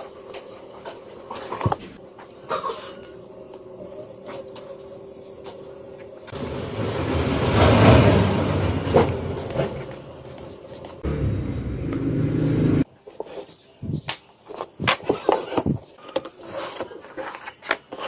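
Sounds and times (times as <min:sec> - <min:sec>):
low rumbling noise: 0:06.4 - 0:12.8.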